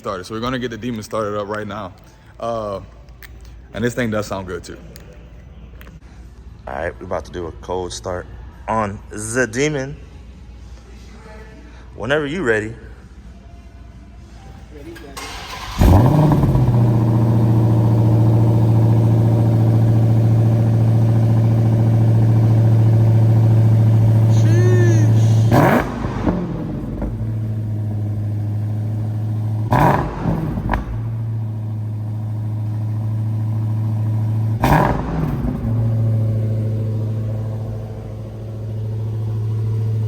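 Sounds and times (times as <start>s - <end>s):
car engine fast idle: 15.2s - 24.3s, 25.1s - 40.0s
engine throttle blips: 15.2s - 40.0s.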